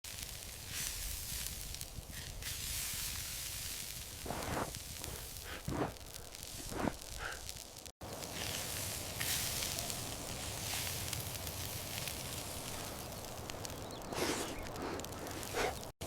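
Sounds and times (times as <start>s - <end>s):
food sizzling over a fire: 0.0s - 16.0s.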